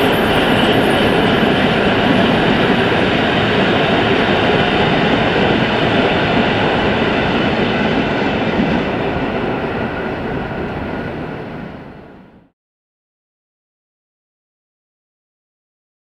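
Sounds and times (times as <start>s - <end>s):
train coaches rolling on rails: 0.0s - 12.4s.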